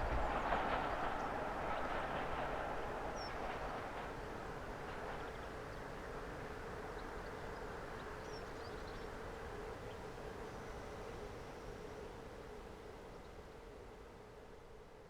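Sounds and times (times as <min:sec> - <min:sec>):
train rumbling: 0:00.0 - 0:05.4.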